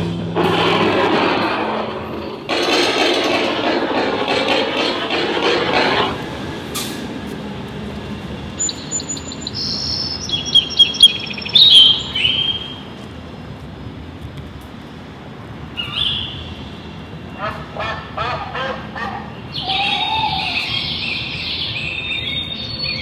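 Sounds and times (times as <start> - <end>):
steady background noise: 0.0 - 23.0
bird chirps and whistled calls: 8.6 - 12.8, 19.5 - 23.0.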